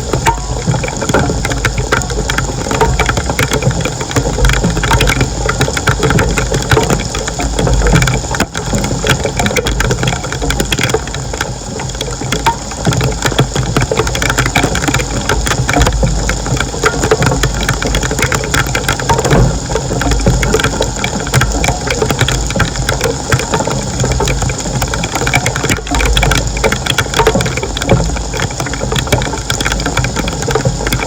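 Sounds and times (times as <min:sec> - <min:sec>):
engine running with rattle: 0:00.0 - 0:31.0.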